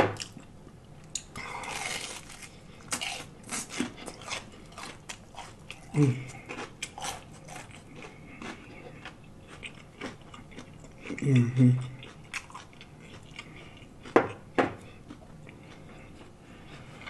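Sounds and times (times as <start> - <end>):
crunching and chewing fried food: 0.1 - 17.0
person humming low: 5.9 - 6.5, 11.2 - 12.0.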